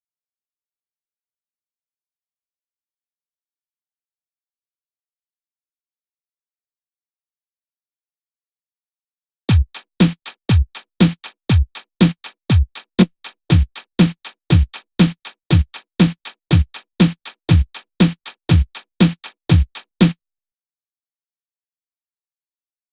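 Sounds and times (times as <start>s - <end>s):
deep electronic kick drum: 9.5s - 20.2s
snare or clap hits: 10.0s - 12.4s, 13.0s - 20.2s.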